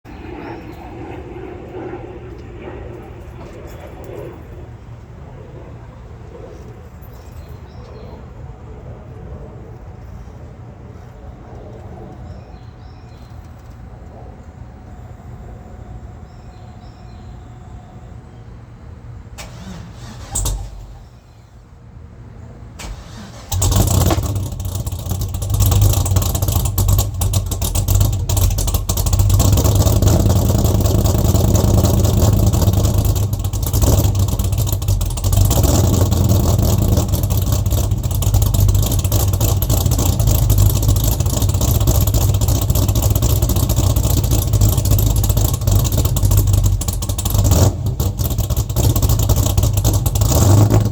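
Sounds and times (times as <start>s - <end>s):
car engine starting and running: 19.3s - 21.4s, 22.7s - 50.9s.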